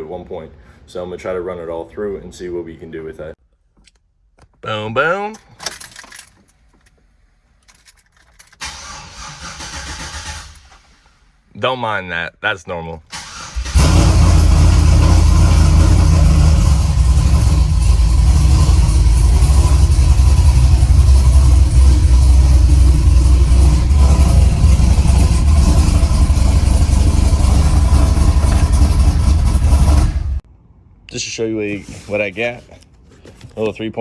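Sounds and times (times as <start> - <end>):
pickup engine idling: 13.3 - 30.4.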